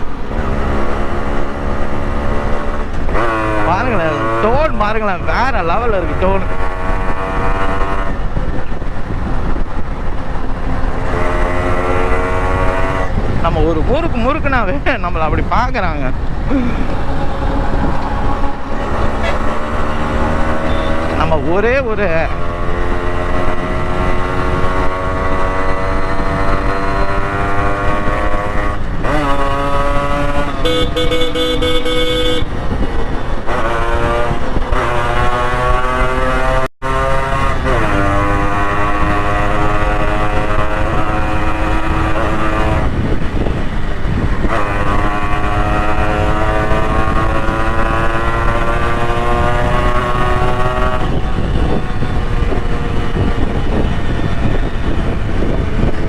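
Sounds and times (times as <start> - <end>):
motorcycle engine accelerating: 0.0 - 56.0
vehicle horn: 20.6 - 21.1, 30.4 - 32.6, 44.5 - 47.4.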